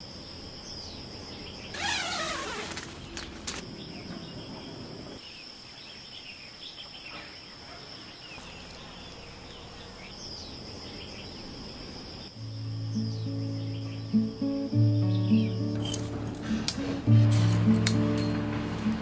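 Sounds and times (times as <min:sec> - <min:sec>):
birds chirping: 0:00.0 - 0:07.1, 0:08.0 - 0:17.2
insects trilling: 0:00.0 - 0:18.2
music: 0:12.4 - 0:19.0.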